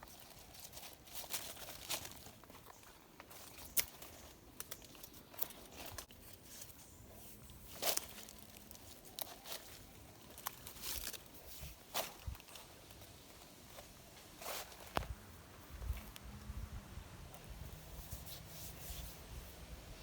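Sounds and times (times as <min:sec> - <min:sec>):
sticks crunching and snapping: 0:00.0 - 0:06.8, 0:07.4 - 0:13.1.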